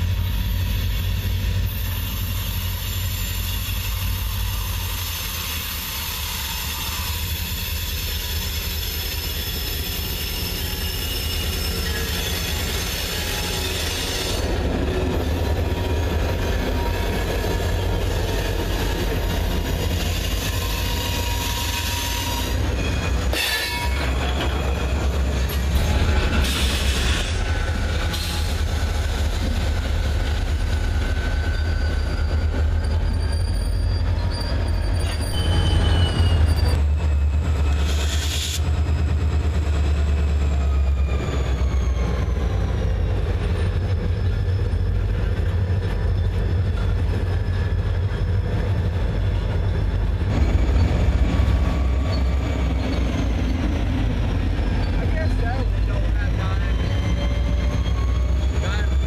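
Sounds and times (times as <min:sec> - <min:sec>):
freight train rumbling: 0:00.0 - 0:59.0
wheel squeals: 0:01.0 - 0:14.5, 0:19.8 - 0:28.6, 0:30.8 - 0:38.7, 0:40.4 - 0:59.0.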